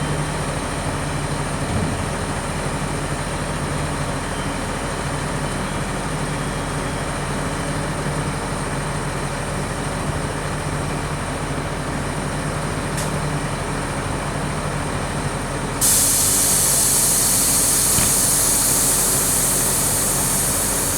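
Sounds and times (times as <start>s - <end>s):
truck engine running: 11.2s - 20.9s
loud air hiss: 15.8s - 20.9s.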